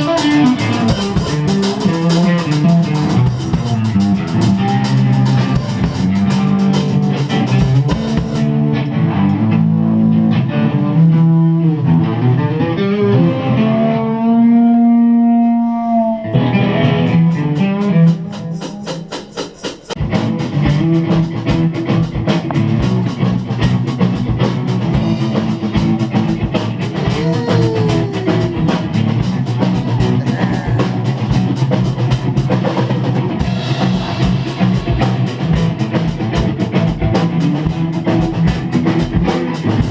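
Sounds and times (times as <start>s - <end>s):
drumming: 0.0s - 8.5s, 16.8s - 39.9s
guitar sustained notes: 0.0s - 19.1s, 20.2s - 39.9s
rock band playing live: 0.0s - 39.9s.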